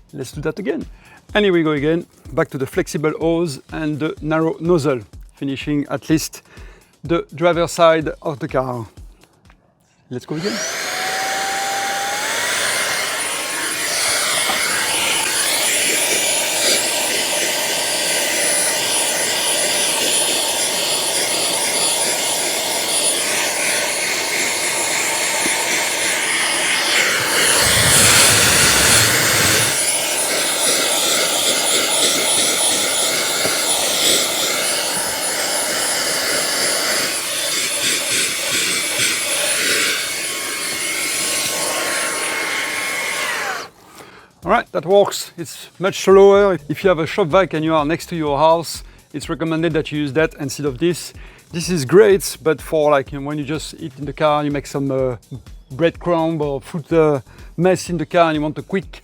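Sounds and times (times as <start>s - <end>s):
handheld vacuum whining: 10.2s - 44.2s.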